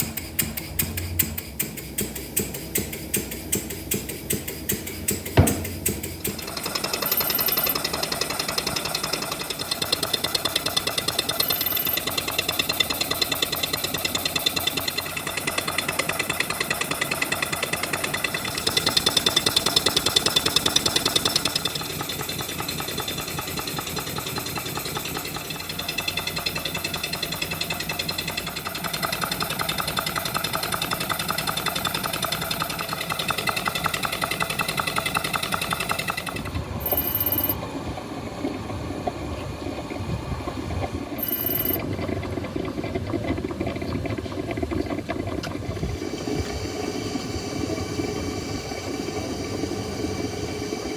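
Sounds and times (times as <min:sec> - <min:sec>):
small model engine running: 0:06.2 - 0:37.6, 0:41.2 - 0:42.4.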